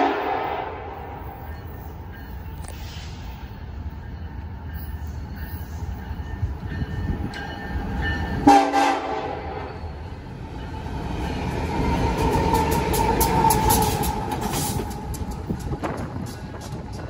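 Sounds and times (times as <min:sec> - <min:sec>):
train horn blast: 0:00.0 - 0:01.0, 0:08.4 - 0:09.6
freight train rumbling: 0:00.0 - 0:17.0.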